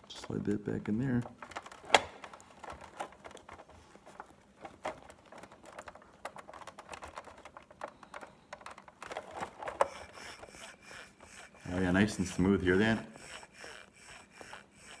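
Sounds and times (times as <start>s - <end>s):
plastic parts clicking: 0.0s - 15.0s.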